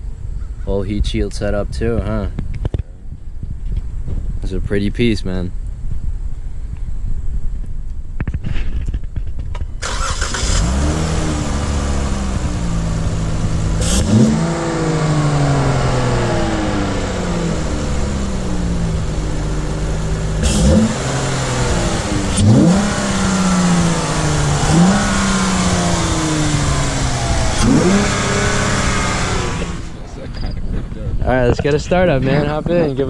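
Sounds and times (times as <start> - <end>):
car engine revving: 9.8 - 30.7.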